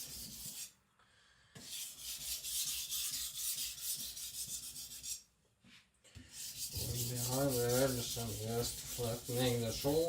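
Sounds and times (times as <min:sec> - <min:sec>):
knife scraping on a whetstone: 0:06.4 - 0:10.0.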